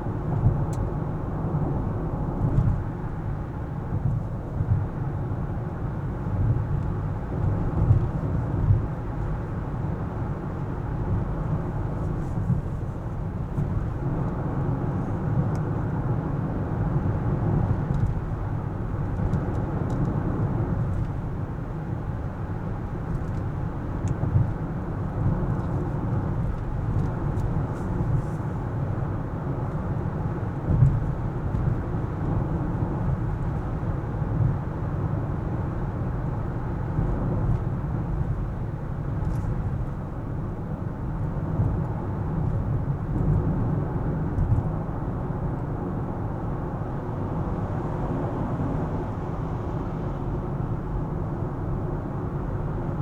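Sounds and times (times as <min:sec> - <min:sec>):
car engine and tyre noise: 0:00.0 - 0:53.0.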